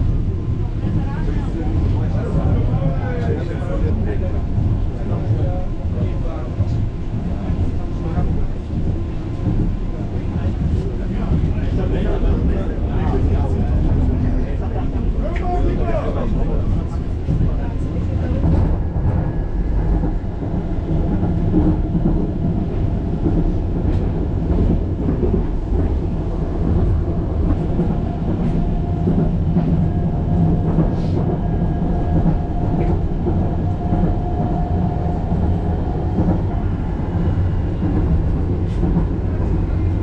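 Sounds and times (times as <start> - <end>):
suspension railway rumbling: 0.0 - 40.0.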